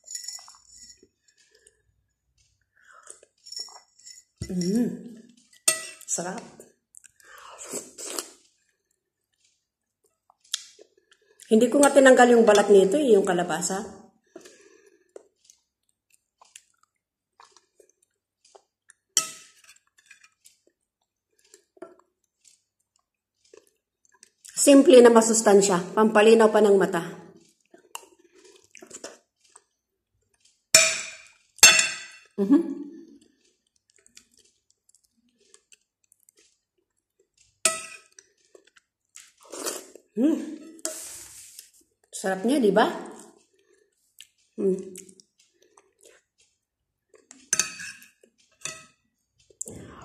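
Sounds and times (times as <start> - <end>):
metal spoon clinking on plate: 0.0 - 1.0, 5.5 - 6.1, 19.2 - 20.3, 30.8 - 32.4, 37.6 - 38.2, 47.5 - 49.0
chewing soft food: 0.4 - 4.0, 6.6 - 11.5, 14.2 - 24.6, 27.3 - 30.7, 33.0 - 42.2, 43.1 - 49.8
wet mouth clicks: 10.5 - 10.8.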